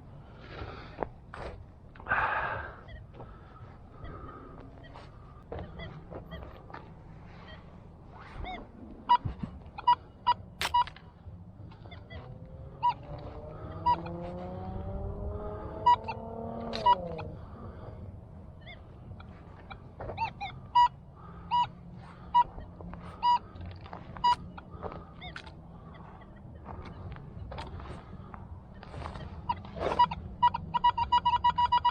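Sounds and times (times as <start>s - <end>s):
metal detector beeps: 8.2s - 11.0s, 11.7s - 14.2s, 15.7s - 17.3s, 20.1s - 27.0s, 28.7s - 31.9s
faint rising and falling tone: 11.9s - 17.9s.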